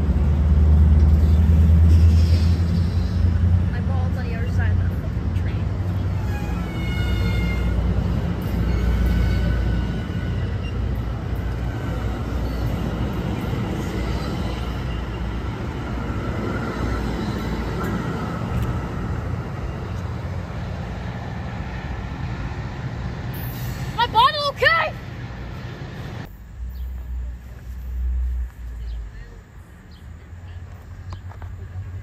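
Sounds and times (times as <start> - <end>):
train wheels rumbling on rail: 0.0 - 32.0
faint wheel squeal: 8.4 - 11.0.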